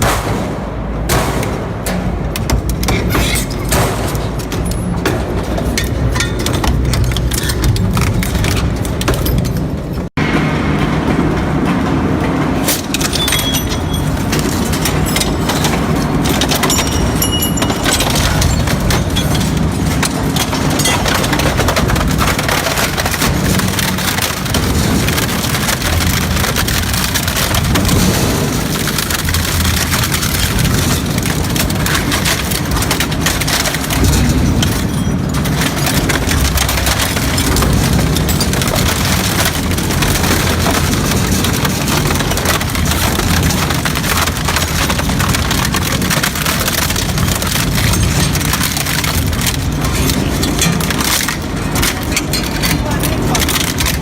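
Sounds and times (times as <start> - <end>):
shredding machine grinding material: 14.1 - 54.0.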